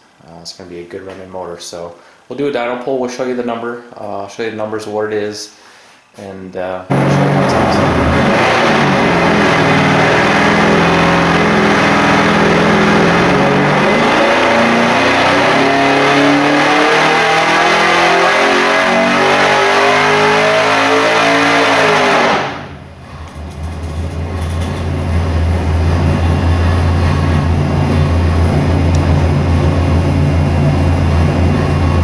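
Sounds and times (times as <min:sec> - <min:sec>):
engine revving at full throttle: 0:06.9 - 0:22.9, 0:24.9 - 0:32.0.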